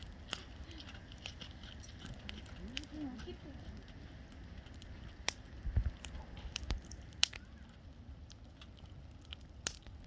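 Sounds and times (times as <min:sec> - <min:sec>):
bonfire crackling: 0:00.0 - 0:10.0
burning wood popping: 0:00.0 - 0:10.0.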